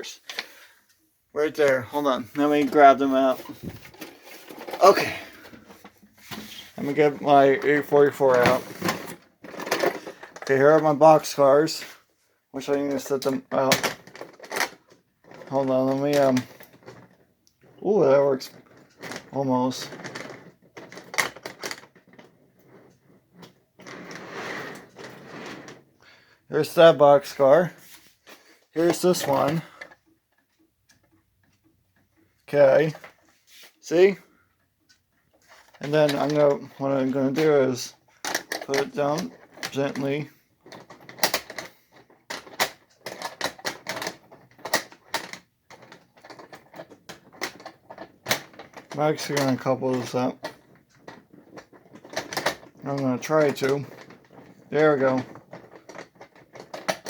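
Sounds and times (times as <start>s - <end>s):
soft rustling and scraping: 0.0s - 57.0s
toy train car clattering on rails: 6.8s - 11.8s, 12.6s - 25.2s, 28.8s - 33.2s, 35.3s - 57.0s.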